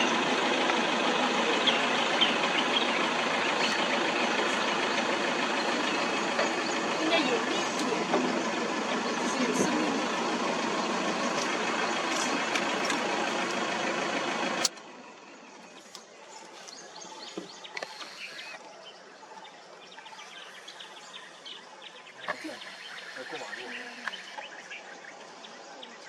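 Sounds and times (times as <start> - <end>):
vehicle engine running loudly: 0.0 - 19.2
faint bird chirps: 15.0 - 26.0.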